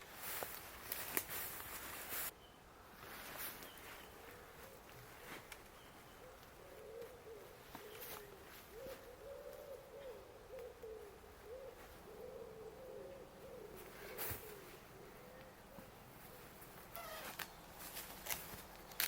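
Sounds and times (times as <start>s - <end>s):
low wavering bird calls: 3.6s - 17.6s.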